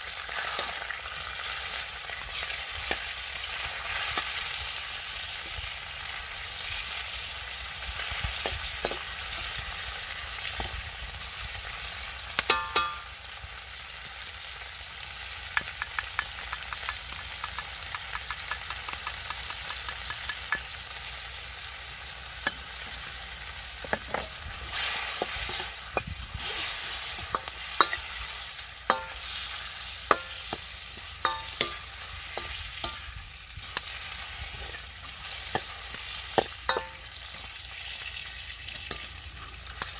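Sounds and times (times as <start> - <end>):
food sizzling in a wok: 0.0 - 39.9
spatula scraping a metal wok: 0.1 - 7.1, 23.8 - 39.9.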